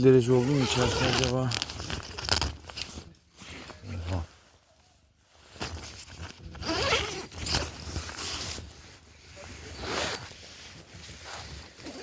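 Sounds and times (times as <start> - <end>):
tent zipper pulled open: 0.3 - 4.3, 5.6 - 12.0.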